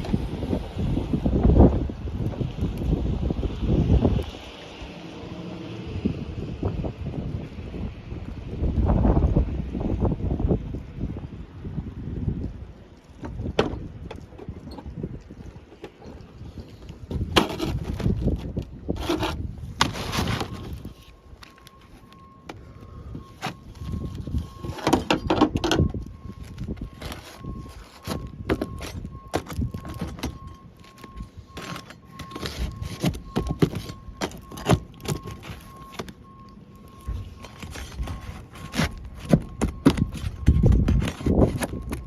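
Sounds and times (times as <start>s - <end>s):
clicks and knocks on roof shingles: 13.1s - 22.6s, 23.4s - 36.2s, 36.9s - 42.0s
scraping on roof: 17.1s - 21.0s, 37.4s - 42.0s.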